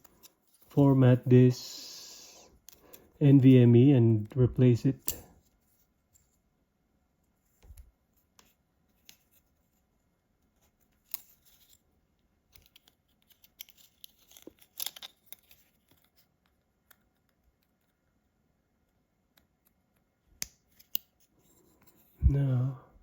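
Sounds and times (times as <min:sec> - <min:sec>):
small parts clicking and scratching: 0:00.0 - 0:00.8, 0:07.3 - 0:09.9, 0:10.5 - 0:18.2, 0:19.3 - 0:22.2.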